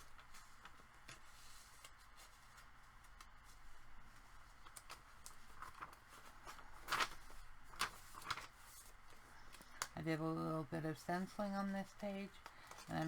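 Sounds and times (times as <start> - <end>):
paper pages rustling: 0.0 - 9.8.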